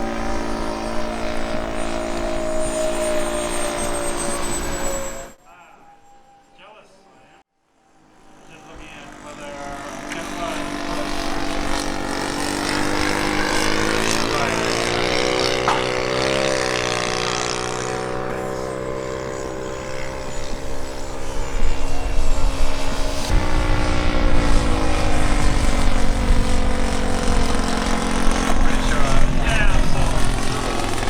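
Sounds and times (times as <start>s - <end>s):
model jet engine whine: 0.0s - 31.0s
rough low rumble: 21.6s - 31.0s.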